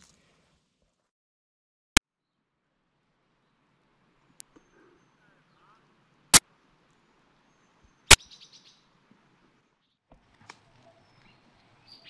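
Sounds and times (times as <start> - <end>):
faint outdoor background: 0.0 - 1.1, 1.9 - 12.0
small bird chirping: 7.5 - 8.9, 10.8 - 12.0.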